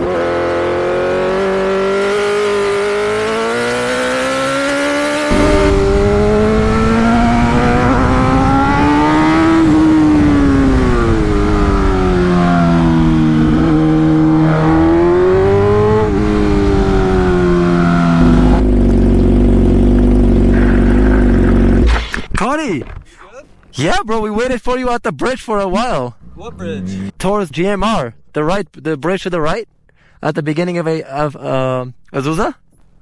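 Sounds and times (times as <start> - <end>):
motorcycle engine revving: 0.0 - 22.1.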